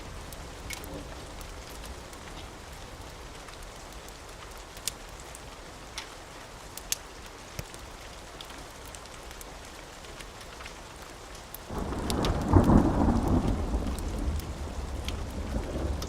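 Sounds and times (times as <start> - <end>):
steady rain: 0.0 - 16.0
sharp crackles: 0.2 - 2.8, 6.8 - 16.0
thunder clap and rumble: 11.7 - 16.0.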